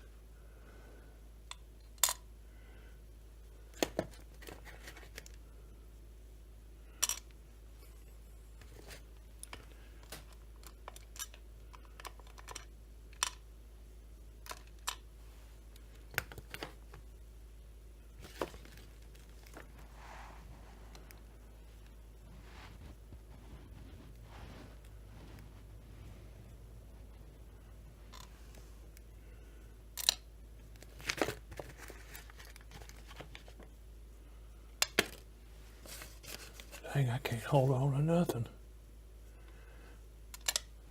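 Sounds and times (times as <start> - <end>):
faint low hum: 0.0 - 40.9
small parts clicking and clattering: 1.5 - 2.2, 6.9 - 7.4, 8.6 - 13.4, 14.4 - 15.0, 30.0 - 33.7, 34.8 - 36.8, 40.3 - 40.7
clicks and taps of small parts: 30.0 - 30.2, 40.3 - 40.7.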